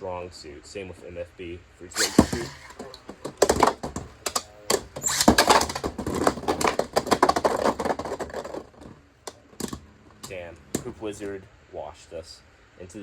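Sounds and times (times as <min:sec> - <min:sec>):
spinning tops clashing and rattling: 0:02.0 - 0:08.9.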